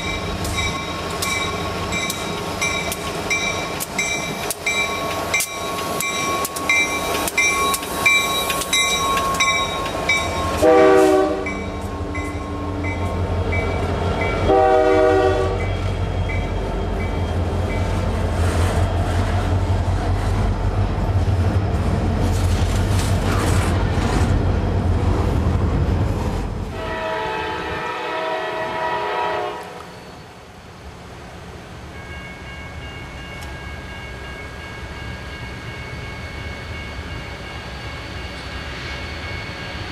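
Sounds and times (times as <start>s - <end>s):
bell ringing: 0.0s - 10.6s
freight train rumbling over rails: 0.0s - 39.9s
train horn blasts: 10.3s - 13.0s, 14.3s - 15.9s, 26.7s - 30.0s.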